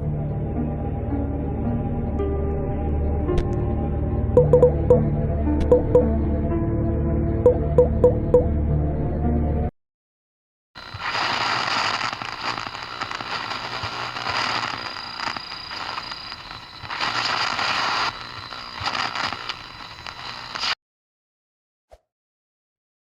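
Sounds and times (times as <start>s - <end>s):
loud static crackling: 10.8s - 20.8s.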